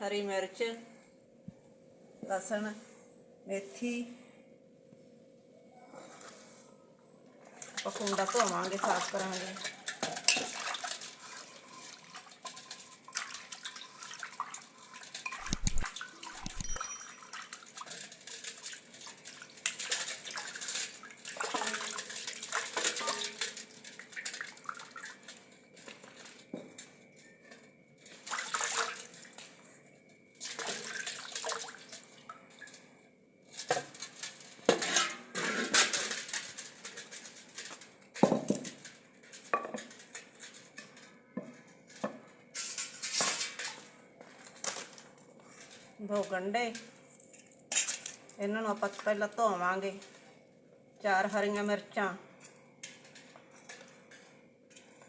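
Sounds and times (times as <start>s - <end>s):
water splashing and pouring: 7.8s - 26.0s, 28.2s - 29.4s, 30.4s - 32.0s
knocks and scrapes against mortar: 15.4s - 16.8s.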